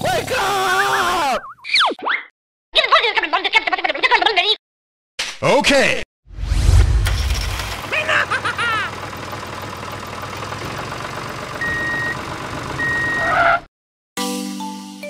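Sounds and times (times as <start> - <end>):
tractor engine running: 7.0 - 13.6
high reversing beeps: 11.6 - 12.2, 12.8 - 13.3.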